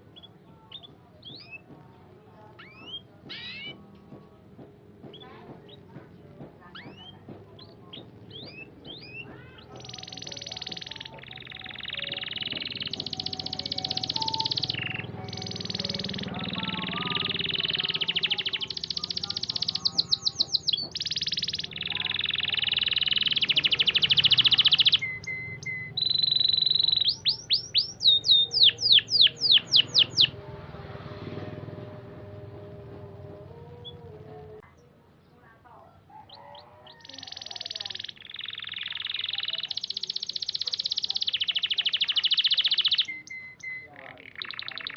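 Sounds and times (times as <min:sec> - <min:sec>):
canary singing: 0:00.0 - 0:44.9
high rolling bird trill: 0:02.5 - 0:03.8, 0:06.6 - 0:30.4, 0:36.1 - 0:44.9.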